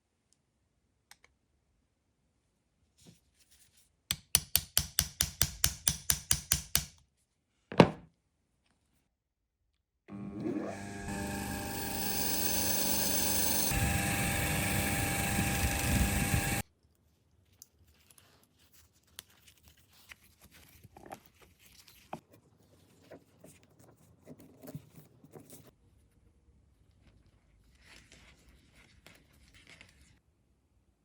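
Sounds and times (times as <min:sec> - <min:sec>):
electric power tool running: 0:10.1 - 0:16.6.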